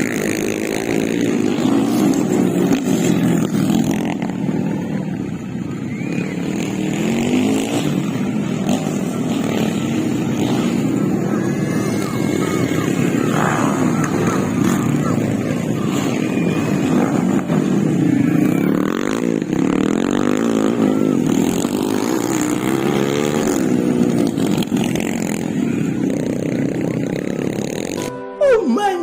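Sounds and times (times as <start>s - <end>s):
motocross bike engines revving: 0.0s - 28.1s.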